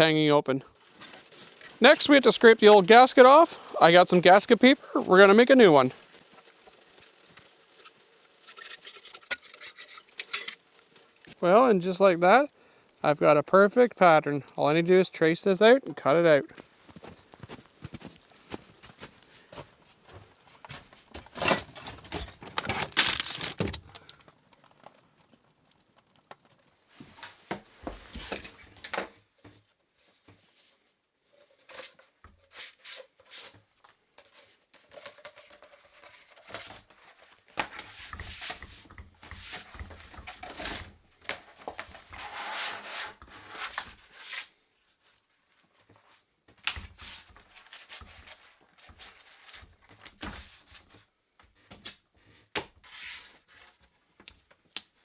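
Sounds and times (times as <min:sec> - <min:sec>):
paper rustling and tearing: 0:00.8 - 0:12.6, 0:16.5 - 0:24.2.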